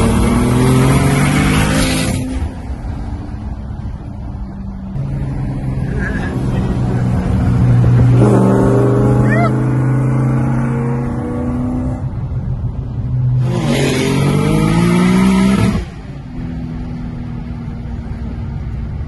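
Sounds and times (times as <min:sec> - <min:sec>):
racing car engine accelerating: 0:13.4 - 0:15.9.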